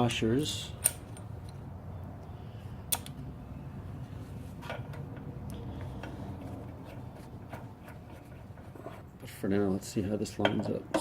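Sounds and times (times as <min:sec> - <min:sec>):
metal parts clicking: 0:00.8 - 0:01.6.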